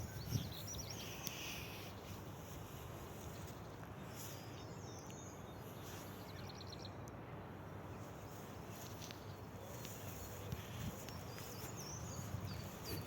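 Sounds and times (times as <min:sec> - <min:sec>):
small birds calling: 0:07.9 - 0:13.0.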